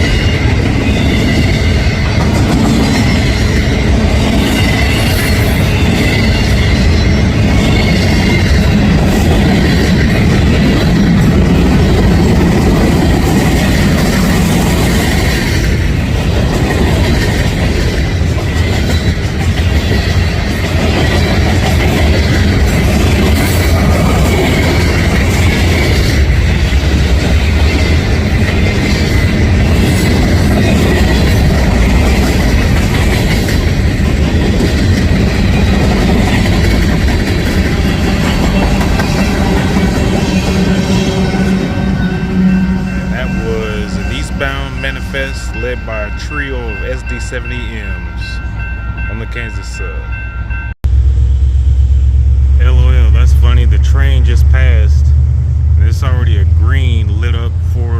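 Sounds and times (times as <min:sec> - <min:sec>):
wheels clattering over rail joints: 0:07.4 - 0:42.1.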